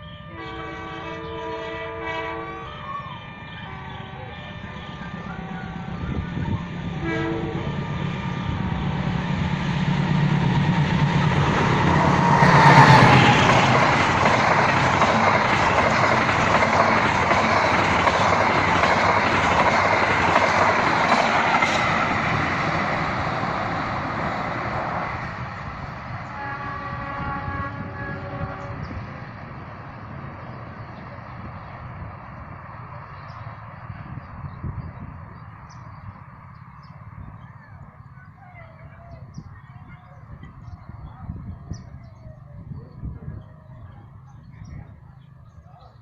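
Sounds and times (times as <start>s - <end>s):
train engine rumble: 0.0s - 46.0s
train wheels clattering on rails: 8.6s - 24.9s.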